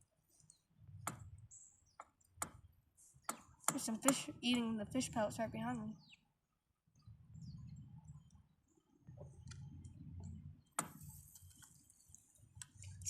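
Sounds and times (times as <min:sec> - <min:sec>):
faint bird chirps: 0:06.9 - 0:12.1.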